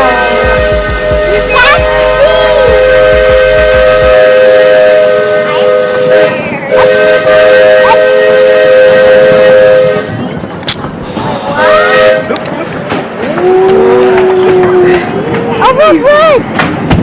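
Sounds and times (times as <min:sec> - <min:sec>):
steam train whistle: 0:00.0 - 0:10.2, 0:11.1 - 0:12.3, 0:13.4 - 0:15.1
steam hissing: 0:11.0 - 0:12.2.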